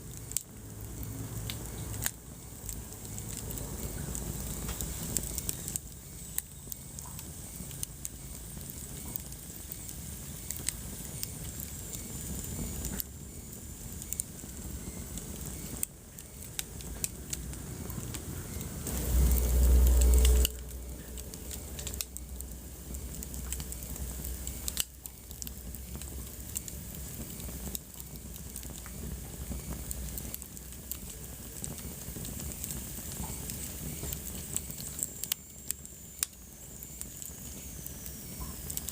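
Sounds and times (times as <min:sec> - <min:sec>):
wood fire crackling and popping: 0:00.0 - 0:38.9
low rumble: 0:17.0 - 0:26.5.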